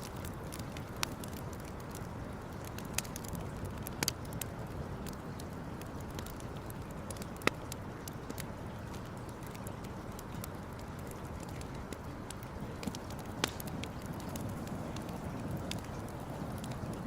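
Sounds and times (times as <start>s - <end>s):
campfire popping and snapping: 0.0s - 17.0s
low rush of burning: 0.0s - 17.0s.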